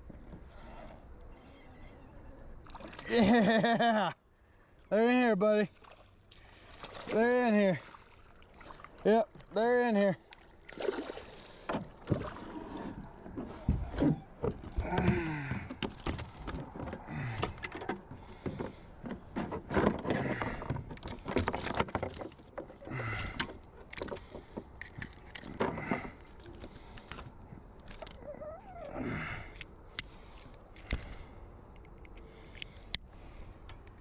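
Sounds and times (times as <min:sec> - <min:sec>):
fishing gear clicking and rattling: 0:13.3 - 0:34.0.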